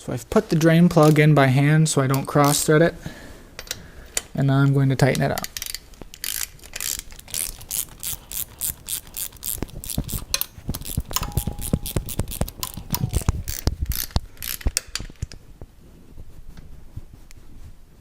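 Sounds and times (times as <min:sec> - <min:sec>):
hand ratchet clicking: 0:05.5 - 0:14.9.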